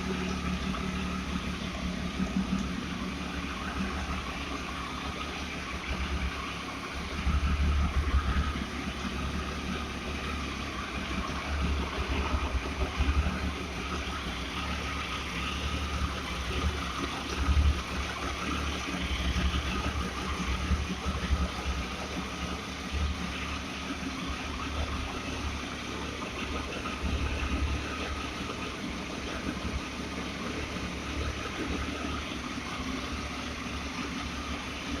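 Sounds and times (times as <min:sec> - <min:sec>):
motorcycle engine idling: 0:00.0 - 0:35.0.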